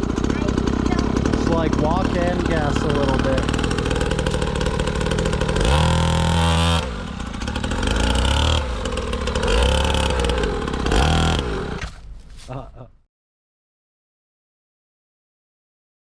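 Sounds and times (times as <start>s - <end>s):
dirt bike engine revving: 0.0s - 12.8s.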